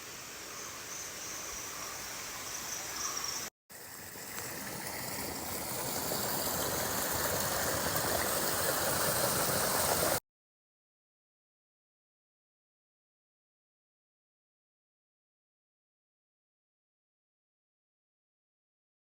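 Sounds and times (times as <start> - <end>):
forest stream rushing water: 3.8 - 10.2.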